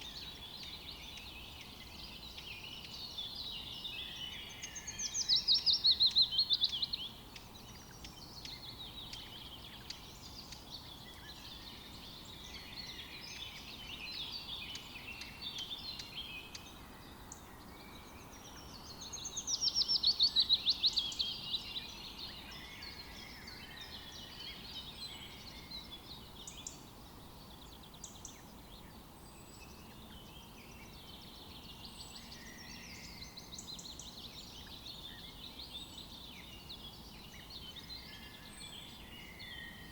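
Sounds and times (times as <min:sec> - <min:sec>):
faint background hiss: 0:00.0 - 0:39.9
songbirds chirping and singing: 0:00.0 - 0:39.9.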